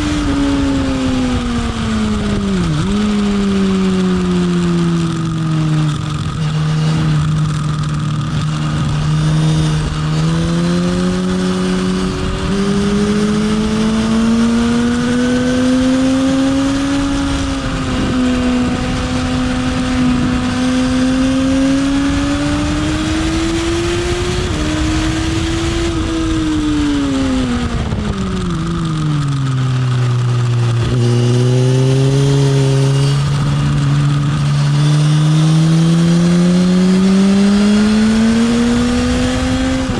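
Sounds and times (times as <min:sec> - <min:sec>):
motorcycle engine accelerating: 0:00.0 - 0:39.9
wind noise rumble: 0:00.0 - 0:39.9.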